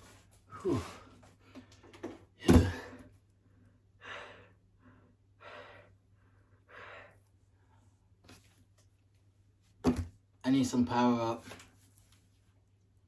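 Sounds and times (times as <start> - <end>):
man breathing hard: 2.6 - 7.3.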